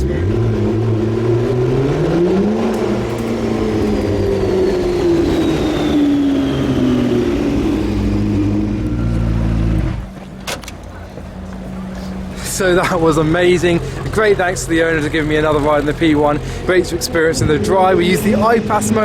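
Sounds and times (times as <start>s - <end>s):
high whine sliding down: 0.0s - 10.1s
car engine running hard: 0.0s - 19.0s.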